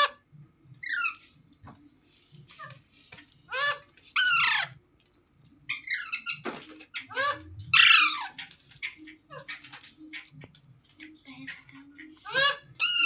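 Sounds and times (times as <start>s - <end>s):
parakeet chattering: 3.5s - 4.8s, 5.7s - 10.4s, 11.0s - 13.0s
parakeet squawking: 3.5s - 4.8s, 5.7s - 10.3s, 11.3s - 13.0s.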